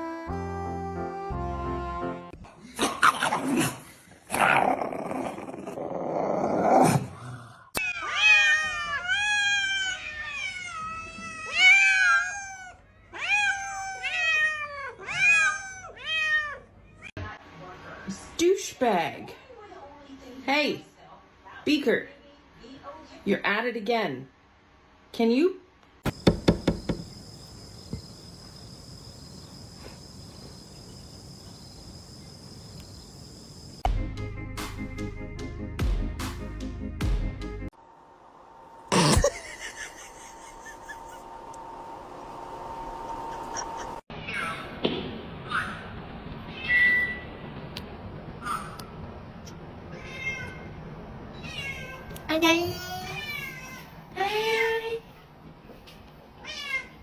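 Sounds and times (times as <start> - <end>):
cat meowing: 7.8 - 16.7, 49.9 - 53.9
insects chirring: 26.0 - 33.9
sharp knocks: 26.1 - 27.2.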